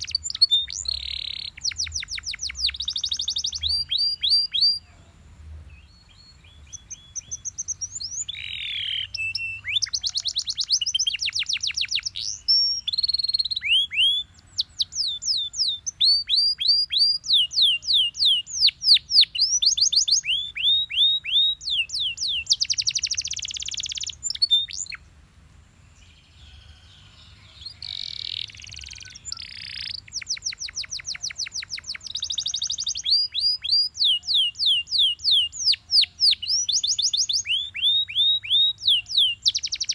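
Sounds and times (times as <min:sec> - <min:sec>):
canary singing: 0:00.0 - 0:05.1, 0:05.7 - 0:25.0, 0:26.2 - 0:39.9.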